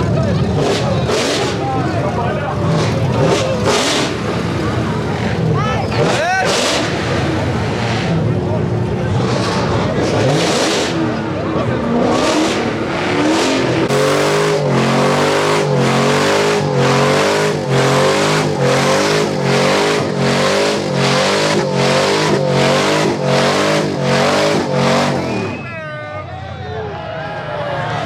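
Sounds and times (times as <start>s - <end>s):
car engine revving hard: 0.0s - 25.7s
tyre squeal: 13.9s - 26.2s.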